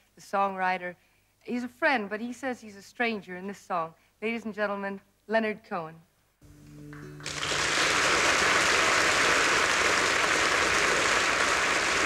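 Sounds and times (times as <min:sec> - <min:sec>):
audience applause: 0:07.2 - 0:12.0.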